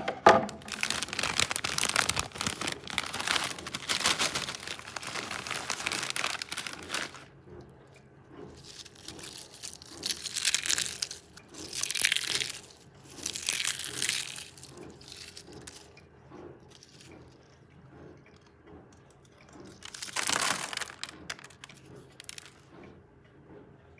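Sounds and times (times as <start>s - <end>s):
potato chips crunching: 0.1s - 7.3s, 8.5s - 16.0s, 19.6s - 22.6s.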